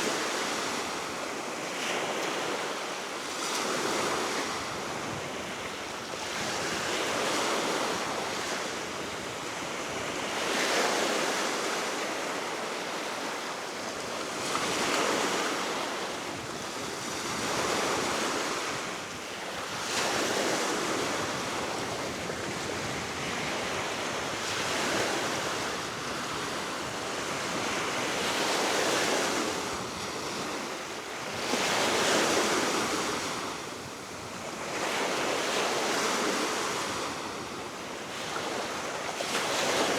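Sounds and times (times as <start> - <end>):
wind blowing across microphone: 3.5 - 10.8, 16.1 - 39.9
waves breaking on shore: 14.2 - 39.9.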